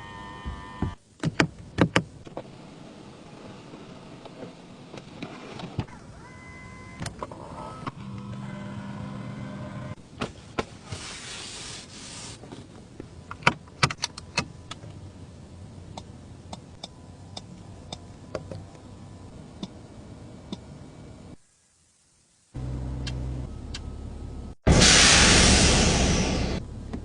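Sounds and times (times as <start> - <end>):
short hiss: 24.7 - 26.6.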